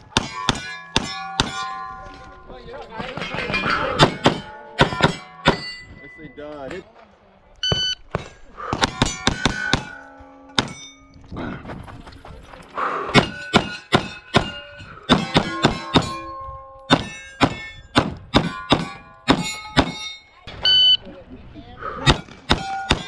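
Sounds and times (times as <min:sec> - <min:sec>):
steel targets ringing: 0:00.0 - 0:06.8, 0:08.1 - 0:11.2, 0:13.1 - 0:20.6, 0:22.1 - 0:23.0.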